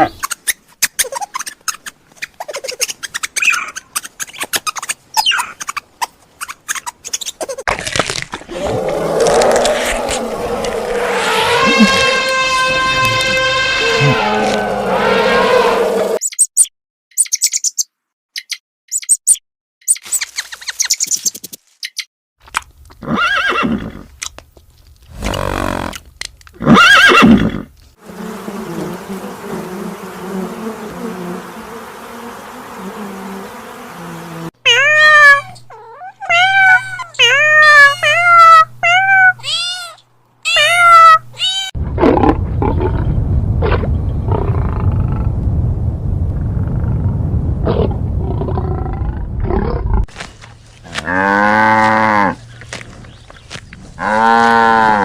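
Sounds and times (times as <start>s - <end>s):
short rising-and-falling calls: 8.5s - 12.9s
loud pitched animal calls: 8.5s - 16.2s
low rough roar: 8.5s - 16.2s, 41.8s - 50.1s.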